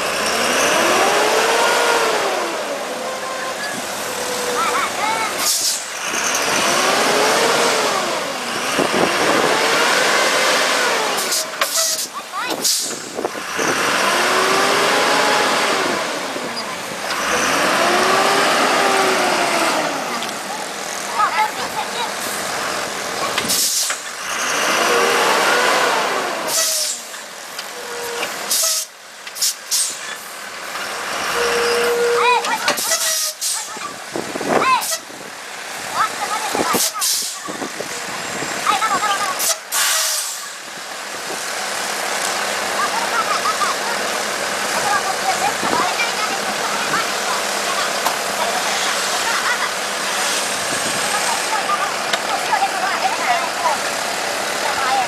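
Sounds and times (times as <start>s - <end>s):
vehicle engine revving: 0.0s - 28.6s
heavy truck running: 0.0s - 55.0s
air brakes hissing: 3.4s - 6.0s, 11.2s - 13.3s, 23.4s - 24.1s, 26.4s - 30.4s, 31.4s - 33.8s, 34.8s - 35.2s, 36.7s - 37.6s, 39.4s - 40.6s
loud rushing noise: 3.8s - 27.1s, 44.5s - 55.0s.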